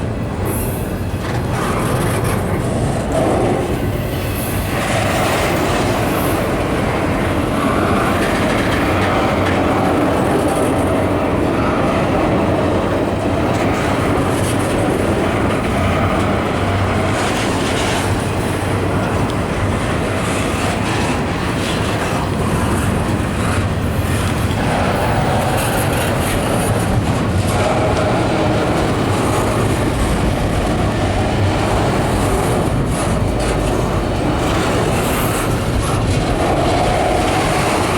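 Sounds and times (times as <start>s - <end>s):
freight train rumbling past: 0.0s - 37.9s.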